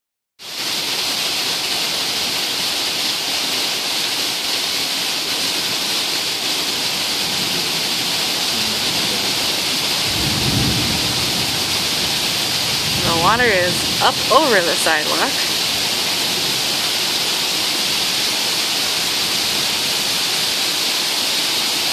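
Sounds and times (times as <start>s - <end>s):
heavy rain pouring: 0.4s - 21.9s
low rumble of thunder: 8.6s - 13.1s.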